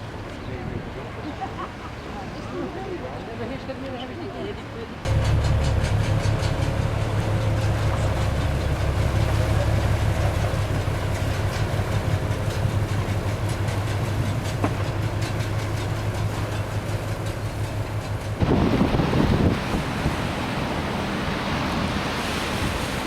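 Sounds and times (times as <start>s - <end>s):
large engine humming: 5.1s - 23.0s.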